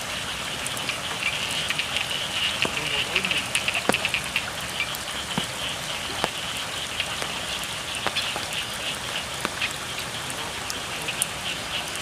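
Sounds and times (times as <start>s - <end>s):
frogs calling: 0.0s - 12.0s
rain falling: 0.0s - 12.0s
water dripping: 0.0s - 12.0s.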